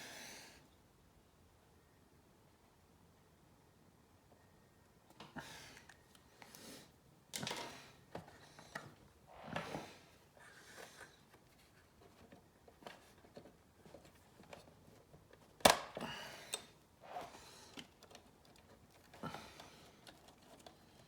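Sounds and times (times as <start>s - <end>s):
small clicks and rustles of handling: 7.3s - 9.1s, 10.7s - 16.8s, 17.7s - 21.0s.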